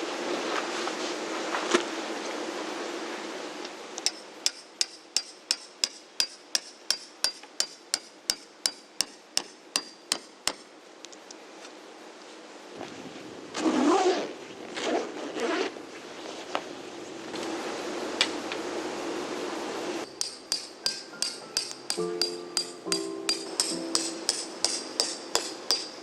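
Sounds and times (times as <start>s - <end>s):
hammer striking metal tent stake: 4.0s - 10.7s, 20.0s - 26.0s.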